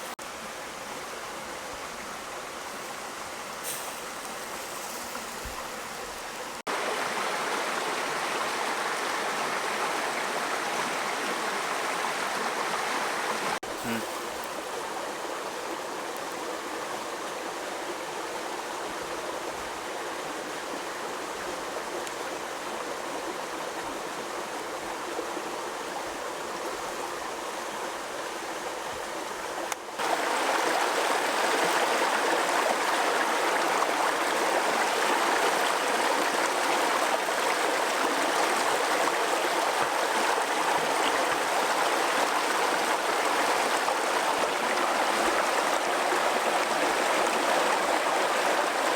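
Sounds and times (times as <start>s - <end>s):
running water rushing: 0.0s - 48.9s.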